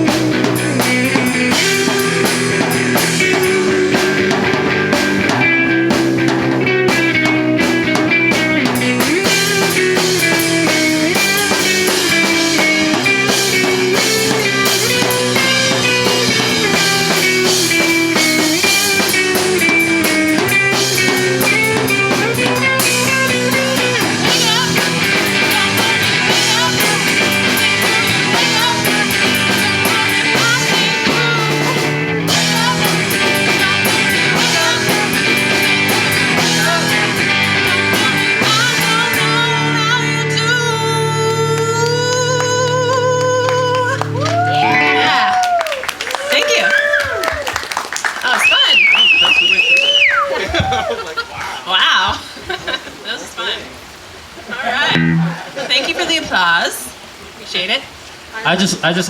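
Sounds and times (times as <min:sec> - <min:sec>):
drum kit with cymbals: 0:00.0 - 0:39.8
guitars: 0:00.0 - 0:46.4, 0:54.9 - 0:55.6.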